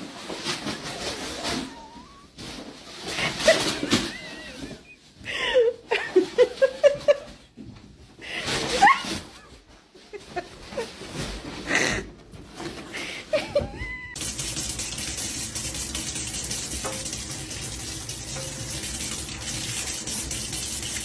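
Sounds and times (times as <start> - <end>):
person laughing: 3.1 - 7.4, 13.0 - 14.2.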